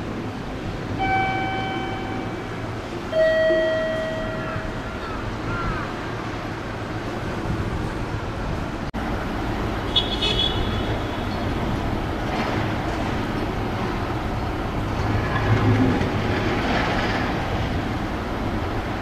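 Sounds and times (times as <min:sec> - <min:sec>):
train rumbling on track: 0:00.0 - 0:19.0
brief high tone: 0:01.0 - 0:05.0.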